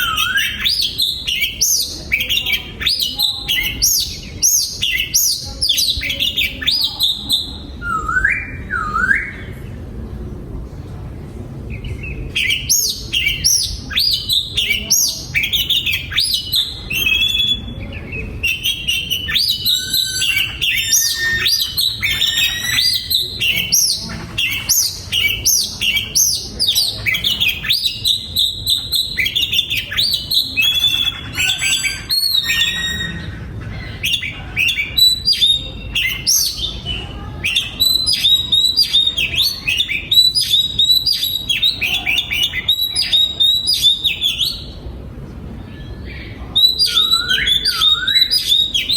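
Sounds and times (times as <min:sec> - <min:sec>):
bird singing whistled trills: 0:00.0 - 0:09.5, 0:12.0 - 0:33.4, 0:34.0 - 0:44.7, 0:45.8 - 0:48.9.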